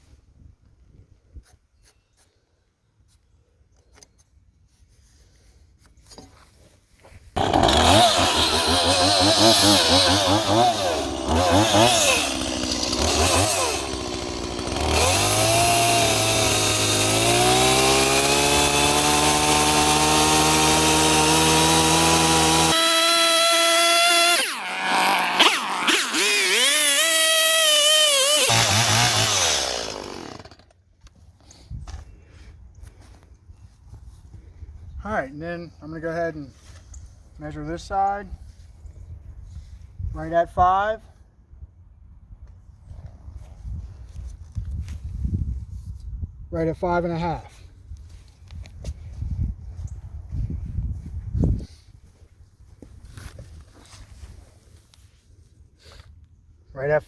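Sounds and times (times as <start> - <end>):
chainsaw cutting log: 7.4 - 30.8.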